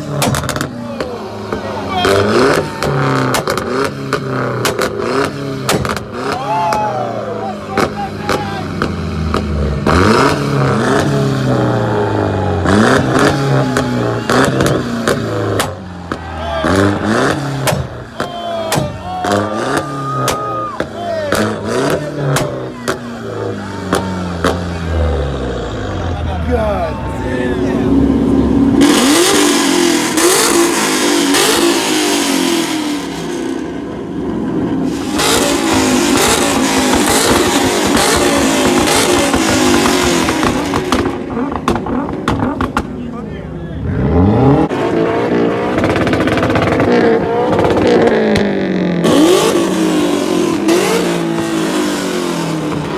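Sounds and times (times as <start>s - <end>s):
car engine revving: 0.0s - 52.9s
sharp cracks: 2.8s - 6.4s, 12.8s - 23.2s.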